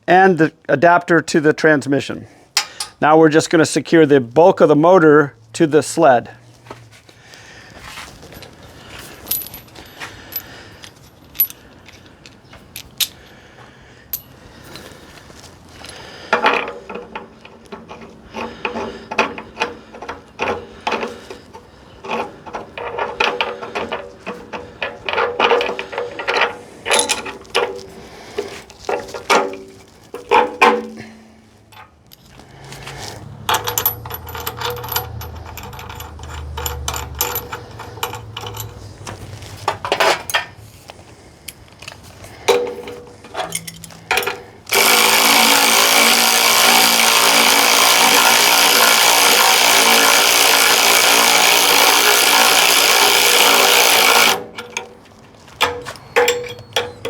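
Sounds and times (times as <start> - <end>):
hand tools clicking on bolts: 2.6 - 3.1, 9.1 - 13.4, 14.1 - 40.6, 41.5 - 57.0
ratchet clicking: 33.5 - 38.8, 43.5 - 54.9
power tool running: 43.6 - 54.6.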